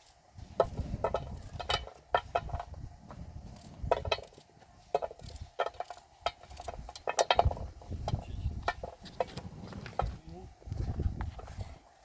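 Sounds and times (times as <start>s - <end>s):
hard objects clicking and knocking: 0.5s - 10.2s.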